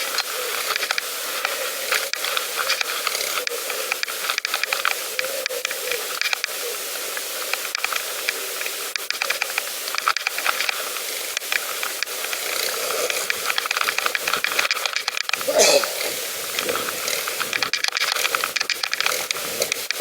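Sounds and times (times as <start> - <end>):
bicycle rolling on a path: 7.7 - 20.0.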